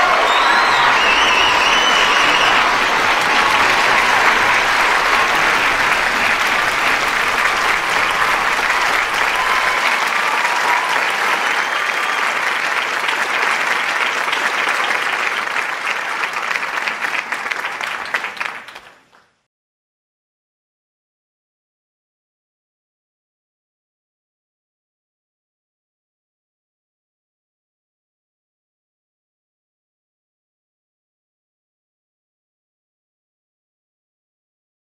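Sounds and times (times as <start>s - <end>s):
large audience applauding: 0.0s - 19.4s.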